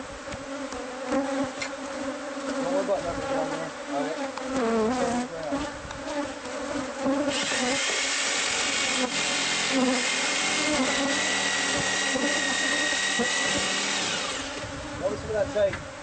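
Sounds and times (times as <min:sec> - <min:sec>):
honeybees buzzing: 0:00.0 - 0:16.0
power tool whining: 0:07.2 - 0:14.8.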